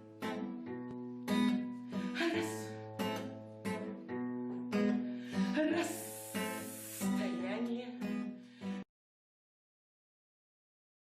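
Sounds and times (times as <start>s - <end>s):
acoustic guitar strumming chords: 0.0s - 8.8s.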